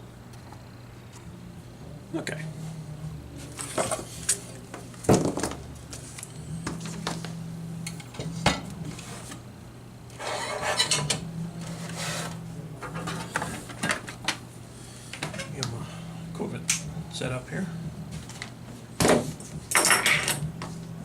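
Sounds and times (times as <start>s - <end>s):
steady low hum: 0.0s - 21.0s
rustling and scraping: 3.4s - 7.4s, 8.0s - 9.5s, 10.1s - 14.3s.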